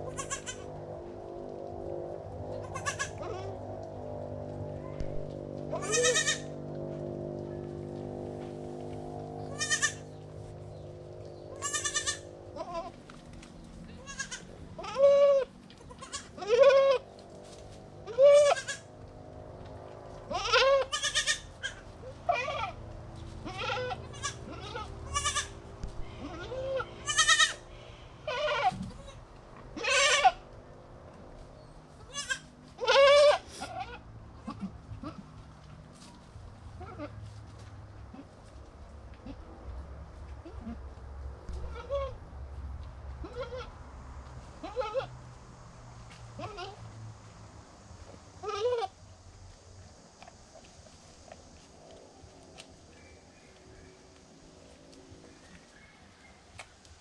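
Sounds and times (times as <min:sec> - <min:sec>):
goats bleating: 0:00.0 - 0:00.8, 0:02.5 - 0:03.6, 0:05.0 - 0:06.6, 0:09.4 - 0:10.2, 0:11.5 - 0:13.0, 0:14.0 - 0:17.0, 0:18.0 - 0:18.9, 0:20.3 - 0:22.8, 0:23.4 - 0:29.2, 0:29.8 - 0:30.4, 0:32.0 - 0:35.3, 0:41.5 - 0:42.2, 0:43.2 - 0:43.8, 0:44.6 - 0:45.1, 0:46.4 - 0:46.8, 0:48.4 - 0:48.9.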